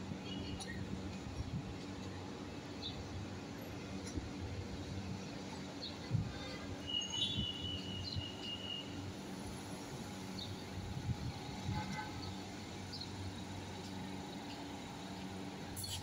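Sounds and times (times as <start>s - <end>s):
train electrical hum: 0.0s - 16.0s.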